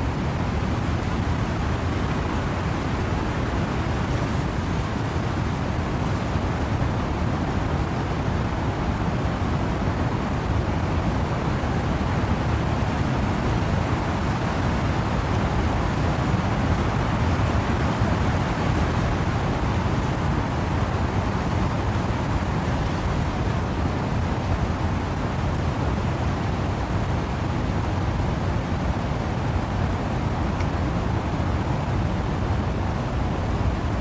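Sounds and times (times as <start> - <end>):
wind and rain through trees: 0.0 - 34.0.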